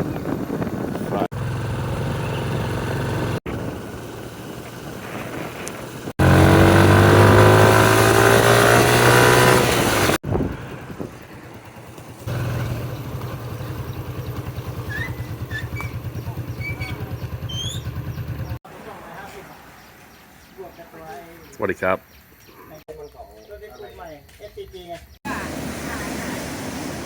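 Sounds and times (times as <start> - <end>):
vehicle engine revving: 0.7 - 18.6.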